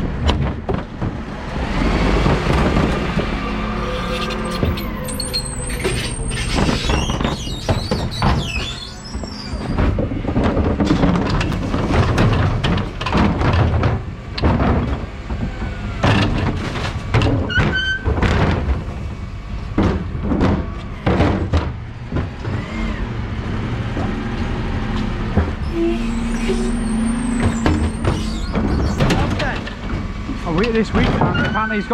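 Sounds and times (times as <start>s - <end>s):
bins banging and clattering: 0.0s - 22.8s, 23.4s - 31.9s
truck engine running: 18.2s - 31.2s.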